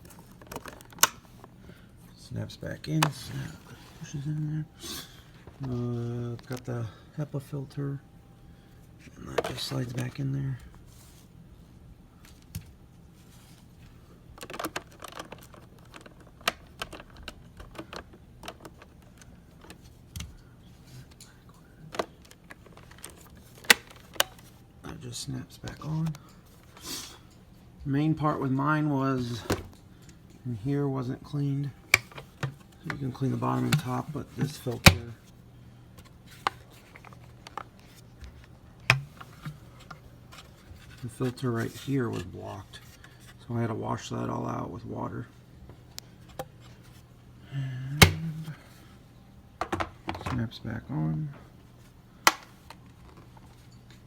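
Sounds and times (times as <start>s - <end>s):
plastic parts clicking and knocking: 0.0s - 1.2s, 14.4s - 20.3s, 21.9s - 24.5s, 31.9s - 35.2s, 36.0s - 40.9s, 48.0s - 48.5s, 52.3s - 53.4s
faint steady hum: 0.0s - 54.0s
plastic parts clicking: 0.3s - 1.2s, 31.9s - 35.2s.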